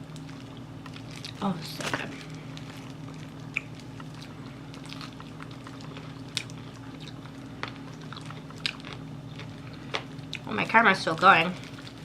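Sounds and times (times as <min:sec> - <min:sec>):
steady low hum: 0:00.0 - 0:12.0
close-up chewing: 0:02.1 - 0:10.5.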